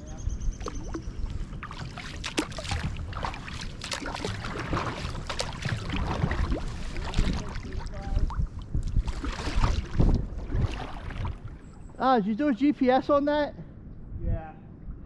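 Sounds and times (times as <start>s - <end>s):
wind rumble on microphone: 0.0s - 12.0s, 13.6s - 15.0s
paddle strokes splashing water: 0.6s - 11.9s.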